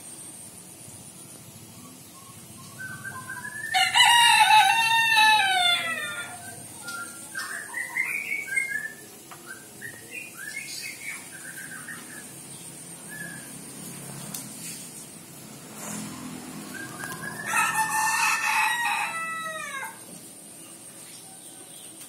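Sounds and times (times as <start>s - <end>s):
bird calling: 1.6s - 13.7s, 15.8s - 20.0s.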